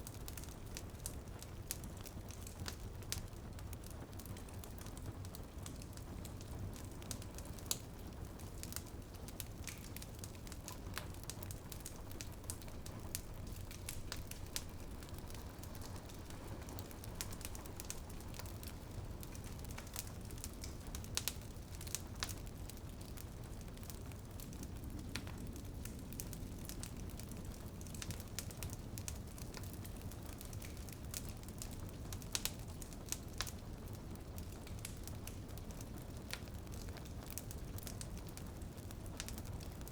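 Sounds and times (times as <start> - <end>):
rain pattering on a window: 0.0 - 39.9
wood fire crackling: 0.0 - 39.9.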